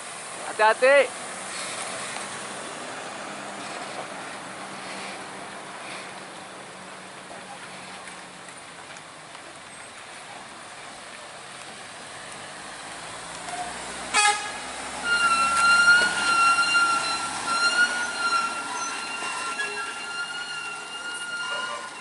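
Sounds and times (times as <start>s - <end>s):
heavy truck running: 0.0s - 22.0s
vehicle horn blaring: 13.5s - 22.0s.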